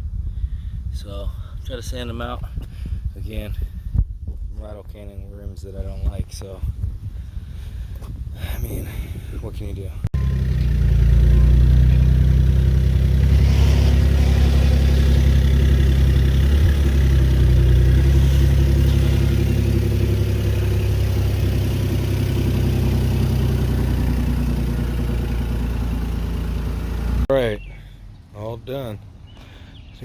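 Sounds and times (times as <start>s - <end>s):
electric sander grinding metal: 12.8s - 21.4s.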